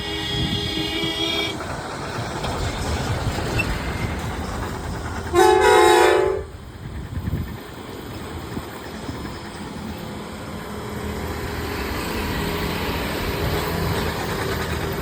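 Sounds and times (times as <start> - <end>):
truck horn blast: 5.3 - 6.5.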